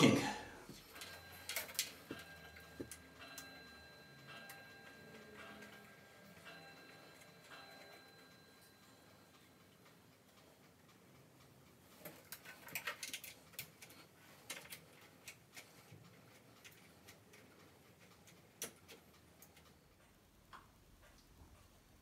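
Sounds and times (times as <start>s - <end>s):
metal clicking and ticking: 9.8s - 21.7s.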